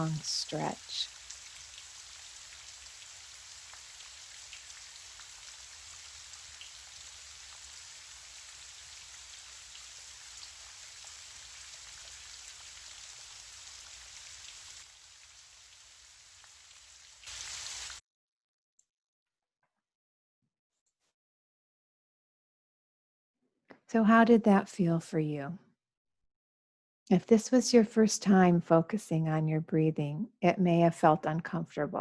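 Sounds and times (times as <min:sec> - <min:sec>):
gentle rain falling: 0:00.0 - 0:18.0
raindrops pattering: 0:00.0 - 0:18.0.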